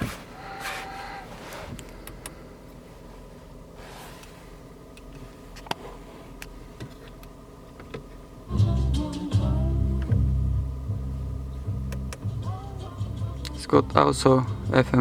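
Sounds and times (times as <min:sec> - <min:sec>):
low cabin hum: 0:00.0 - 0:15.0
hands tapping car controls: 0:11.8 - 0:12.3.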